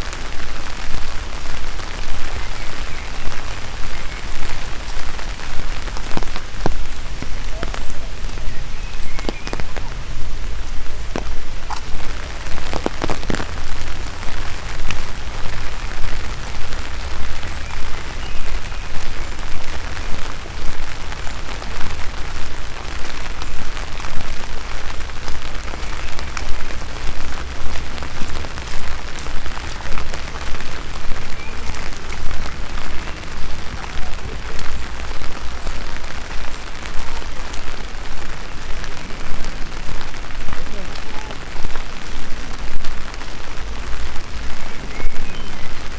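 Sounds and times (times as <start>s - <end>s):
rain falling: 0.0s - 45.9s
footsteps: 4.4s - 17.3s.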